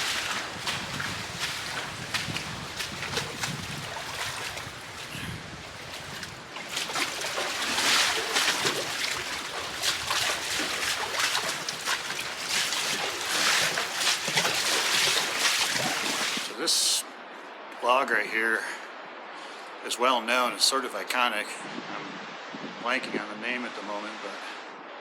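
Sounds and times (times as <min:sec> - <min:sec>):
water rushing over rock: 0:00.0 - 0:16.6.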